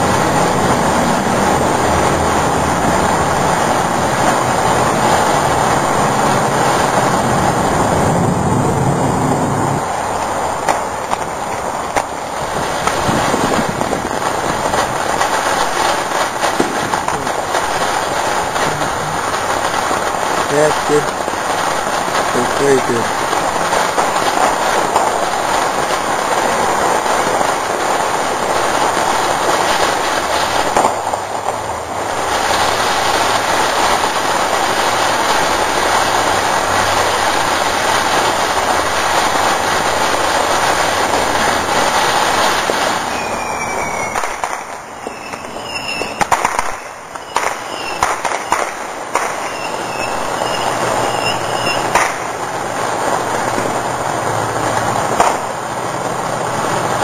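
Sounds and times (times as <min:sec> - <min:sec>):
fireworks crackling: 0:00.0 - 0:57.0
firework whistles: 0:32.1 - 0:52.4.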